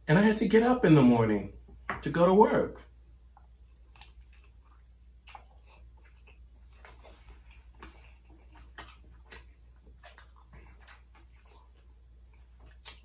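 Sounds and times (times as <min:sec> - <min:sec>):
crunching while eating: 0:03.4 - 0:13.0.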